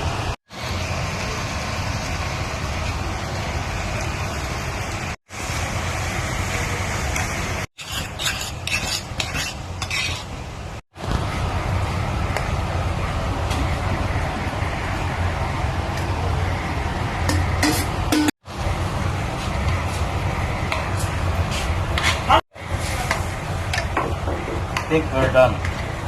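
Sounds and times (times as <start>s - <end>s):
utensil scraping a pan: 7.8s - 10.4s, 20.7s - 23.8s.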